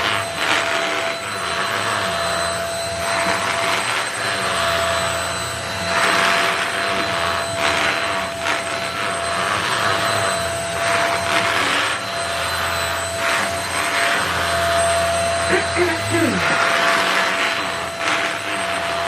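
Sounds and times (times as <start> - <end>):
vacuum cleaner motor whine: 0.0 - 19.0.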